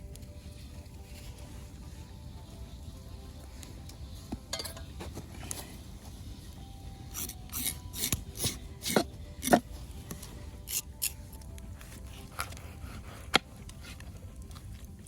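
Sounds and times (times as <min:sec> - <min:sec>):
knife scraping fish skin: 0:07.2 - 0:09.6.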